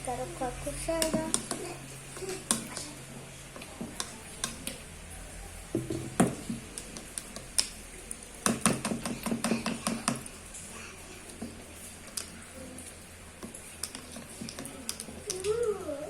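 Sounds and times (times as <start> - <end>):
spoon stirring in container: 11.2 - 15.5.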